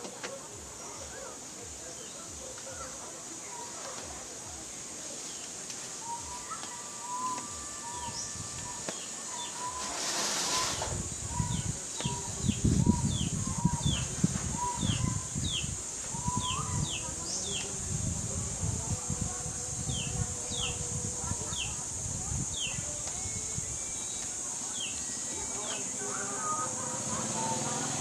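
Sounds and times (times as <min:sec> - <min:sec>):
steady high hiss: 0:00.0 - 0:28.0
low rustling and bumps: 0:08.1 - 0:23.7.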